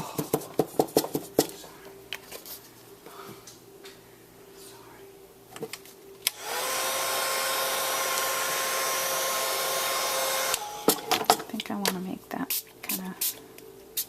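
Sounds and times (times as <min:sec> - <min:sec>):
hot-air blower motor whine: 0:06.3 - 0:11.5.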